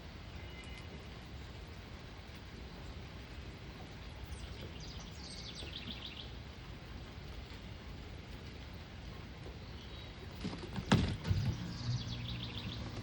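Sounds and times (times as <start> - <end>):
low rumbling background noise: 0.0 - 13.0
songbird rapid high chirps: 11.4 - 13.0.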